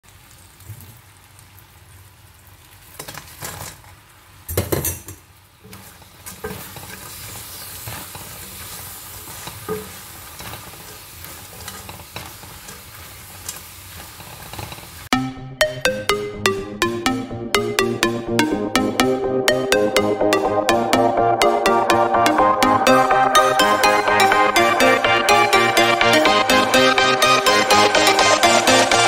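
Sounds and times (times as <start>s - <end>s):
sauce sizzling in a wok: 0.0s - 15.1s
spatula scraping a wok: 5.6s - 15.1s.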